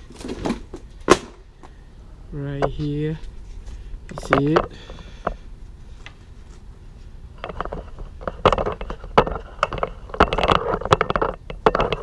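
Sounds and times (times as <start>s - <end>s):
scraping and rustling: 0.0s - 1.4s
parts clicking and knocking: 7.4s - 12.0s.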